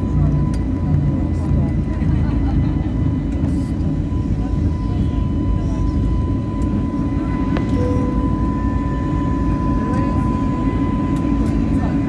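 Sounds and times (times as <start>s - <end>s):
jet engine low rumble: 0.0s - 12.0s
high jet whine: 6.2s - 12.0s.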